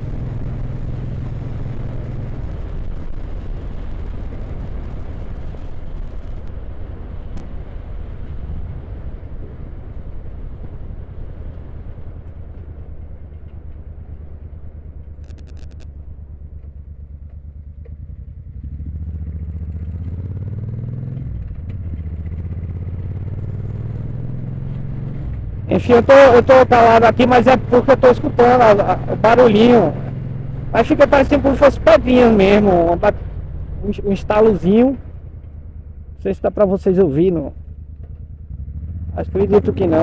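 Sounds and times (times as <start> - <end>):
wind rush: 0.0 - 12.2
motorcycle engine running: 0.0 - 40.0
faint ticks: 15.1 - 15.9.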